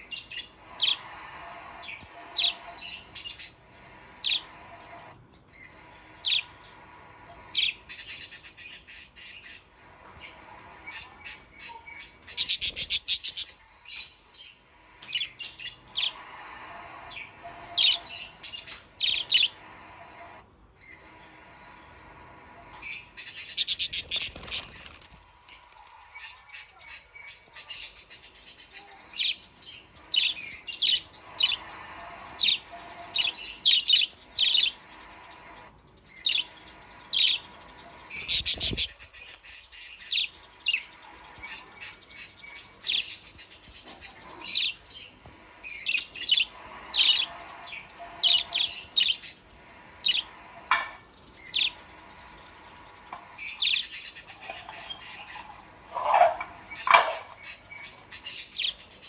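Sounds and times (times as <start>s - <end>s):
parakeets chirping: 0.0s - 21.8s, 22.6s - 59.0s
low warbling bird calls: 53.4s - 59.0s.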